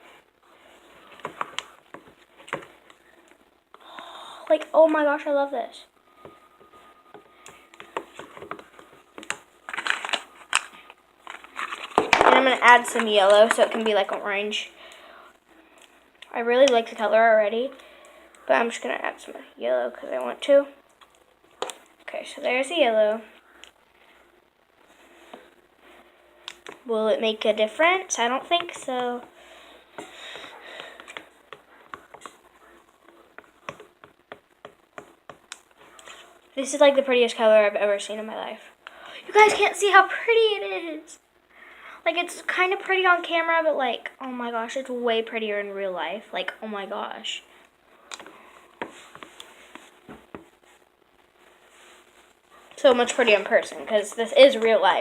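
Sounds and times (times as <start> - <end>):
hands clicking and tapping supplies: 7.1 - 10.7
clicks and taps of mixing: 29.9 - 32.4, 33.0 - 35.7.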